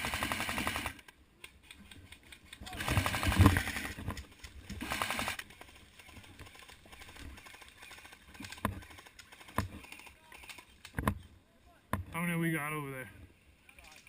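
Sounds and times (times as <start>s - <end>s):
airsoft gun firing: 2.7s - 4.0s.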